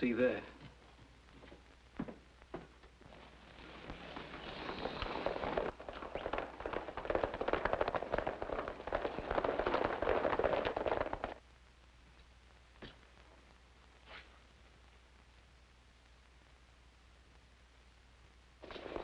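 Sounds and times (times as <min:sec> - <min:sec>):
horses galloping hoofbeats: 0:02.6 - 0:11.4.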